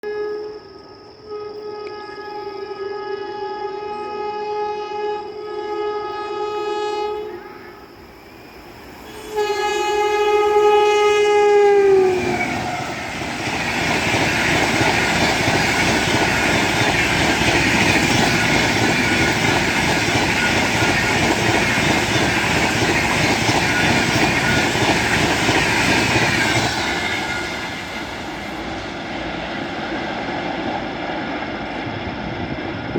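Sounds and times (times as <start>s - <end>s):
train horn blast: 0.0s - 7.9s, 9.1s - 13.0s
train coaches passing: 0.4s - 32.9s.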